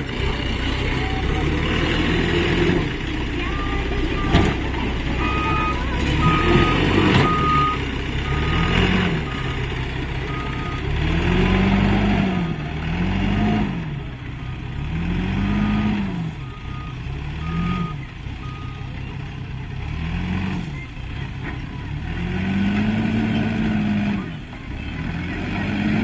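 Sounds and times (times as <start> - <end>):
diesel engine revving: 0.0 - 26.0
reversing alarm beeps: 3.4 - 9.6, 15.6 - 19.0.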